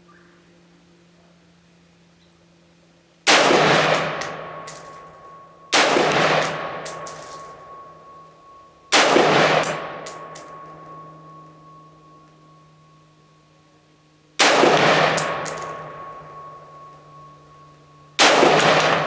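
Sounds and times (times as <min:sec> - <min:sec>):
rifle shots echoing: 0:03.3 - 0:05.0, 0:05.7 - 0:07.4, 0:08.9 - 0:10.9, 0:14.4 - 0:16.6, 0:18.2 - 0:19.0.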